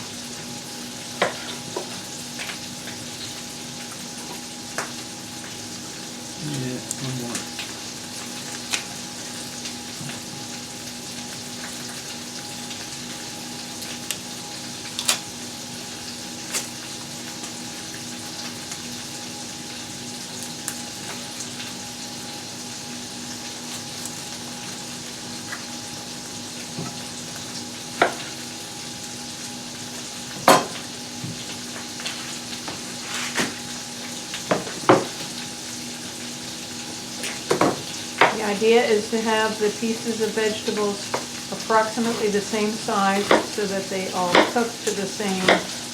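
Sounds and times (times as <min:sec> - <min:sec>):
chicken sizzling in a frying pan: 0:00.0 - 0:45.9
kitchen utensils clicking and knocking: 0:42.0 - 0:45.8.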